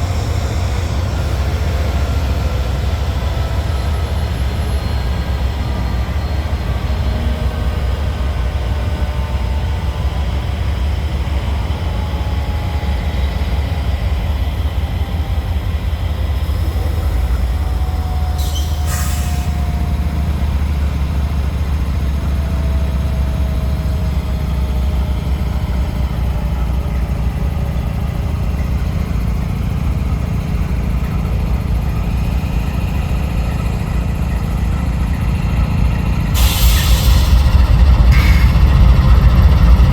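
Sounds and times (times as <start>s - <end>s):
freight train rumbling on rails: 0.0s - 39.9s
brief hiss: 36.4s - 38.6s.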